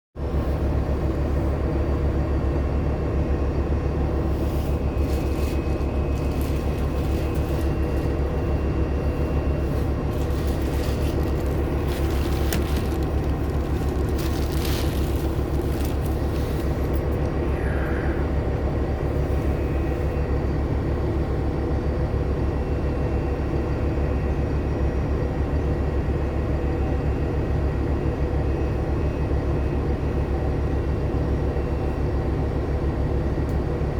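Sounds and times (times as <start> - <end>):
bus engine drone: 0.2 - 33.9
rattles and clicks: 10.1 - 17.4.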